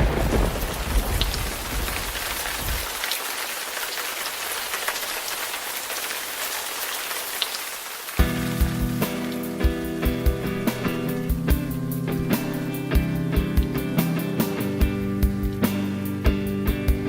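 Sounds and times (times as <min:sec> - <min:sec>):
rumble of thunder: 0:00.0 - 0:02.9
steady rain falling: 0:00.0 - 0:17.0.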